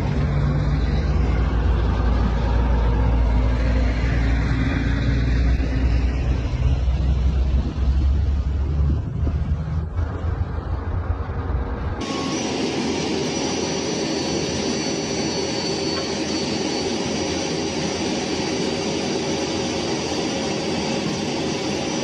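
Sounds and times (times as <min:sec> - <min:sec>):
vehicle engine rumbling: 0:00.0 - 0:13.2.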